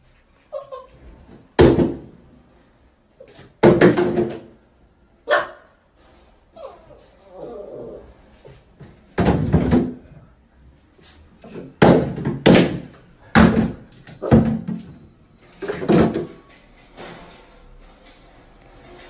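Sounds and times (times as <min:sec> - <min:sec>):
plastic bottles falling into tub: 0:03.4 - 0:04.6, 0:08.9 - 0:10.2, 0:11.5 - 0:14.9, 0:15.6 - 0:16.5.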